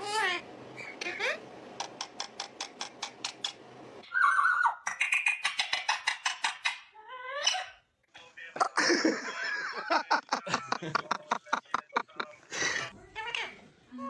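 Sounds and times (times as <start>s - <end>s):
parrot calling in pulsed runs: 4.0s - 4.8s
parrot held whistle: 4.1s - 4.8s.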